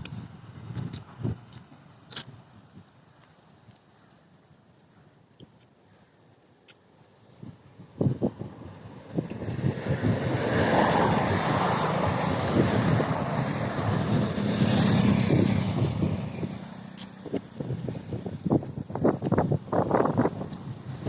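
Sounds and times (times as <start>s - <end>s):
wind buffeting microphone: 0.0s - 2.9s, 7.3s - 21.0s
vehicle passing by: 8.3s - 18.4s.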